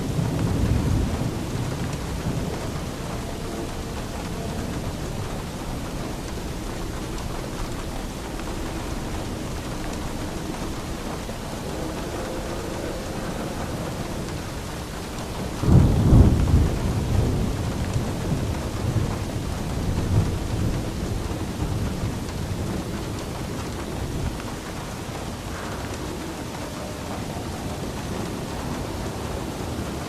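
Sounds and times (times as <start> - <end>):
steady rain: 0.0 - 30.0
thunder crack and rumble: 0.0 - 30.0.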